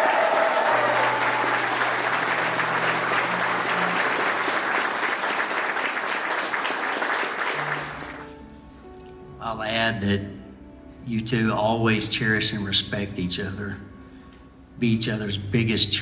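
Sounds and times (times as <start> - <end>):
person whooping: 0.0 - 2.1
crowd applauding and cheering: 0.0 - 8.3
faint low held music notes: 8.2 - 16.0.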